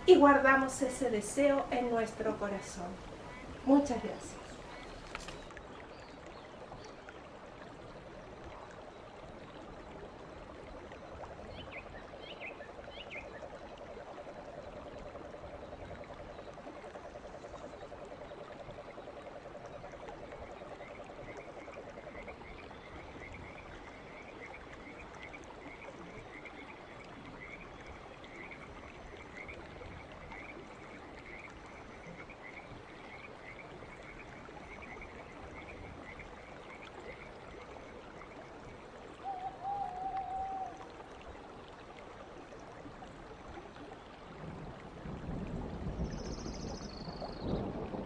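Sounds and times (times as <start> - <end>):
frogs calling: 0.0 - 5.5, 11.5 - 41.0.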